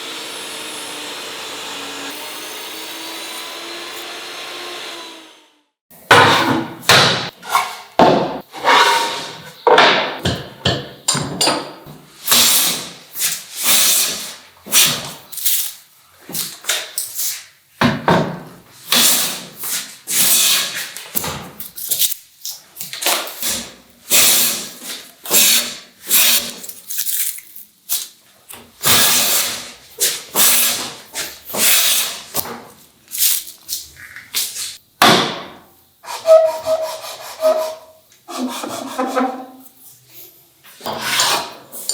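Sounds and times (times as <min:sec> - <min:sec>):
hand tool scraping wood: 0:08.5 - 0:09.6, 0:36.0 - 0:39.7, 0:40.7 - 0:41.9.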